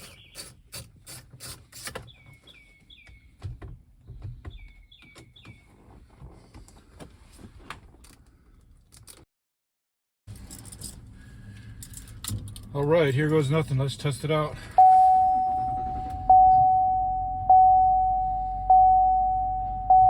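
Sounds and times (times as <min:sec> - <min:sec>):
bird chirping: 0:00.0 - 0:00.5, 0:02.0 - 0:03.4, 0:04.0 - 0:05.8.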